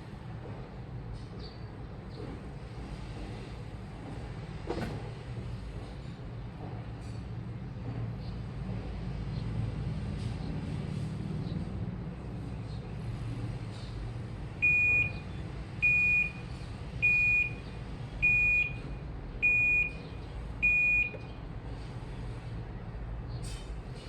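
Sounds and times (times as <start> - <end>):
washing machine beeping: 14.6 - 21.4.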